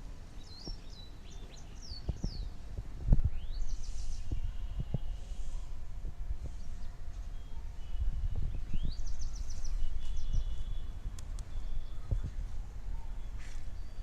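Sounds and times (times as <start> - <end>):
steady low rumble: 0.0 - 14.0
small bird singing: 0.3 - 5.8, 6.4 - 14.0
sharp clicks: 11.1 - 11.6.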